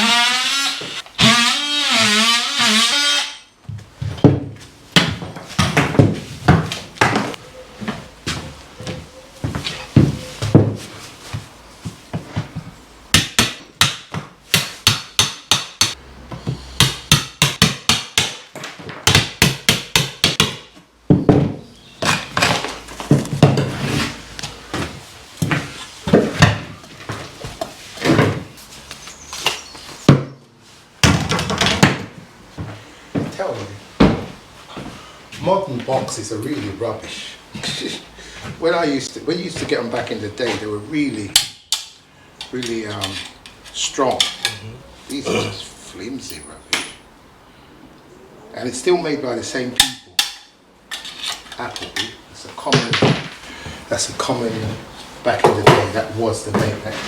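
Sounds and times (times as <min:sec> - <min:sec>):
hammer striking a chisel: 0:13.2 - 0:16.0, 0:16.8 - 0:18.4, 0:19.1 - 0:20.7.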